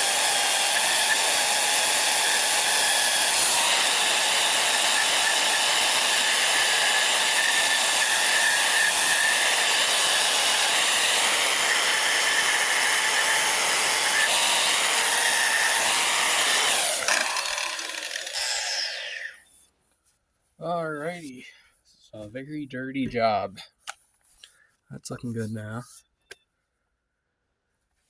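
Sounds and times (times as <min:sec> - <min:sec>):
burnishing tool grinding metal: 0:00.0 - 0:19.4.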